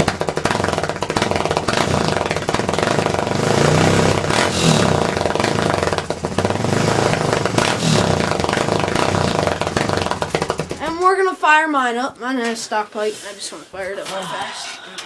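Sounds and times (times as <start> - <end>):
quad engine revving: 0.0 - 10.8.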